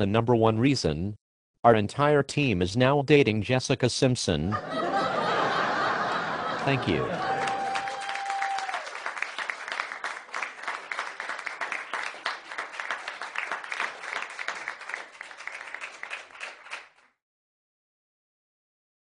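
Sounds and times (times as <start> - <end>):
audience applause: 5.0 - 17.0.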